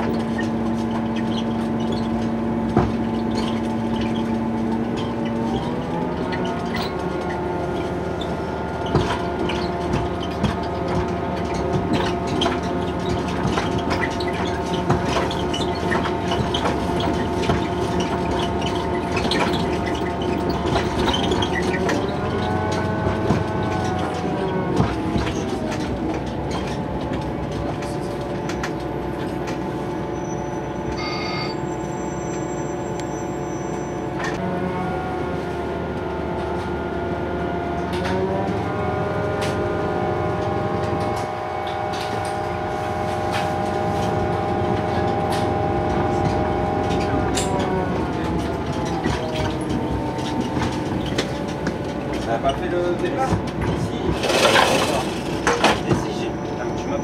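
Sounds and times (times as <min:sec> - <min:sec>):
diesel railcar engine drone: 0:00.0 - 0:57.0
wheel clicks over rails: 0:08.9 - 0:29.7, 0:43.3 - 0:56.3
thin high tone: 0:31.0 - 0:32.5.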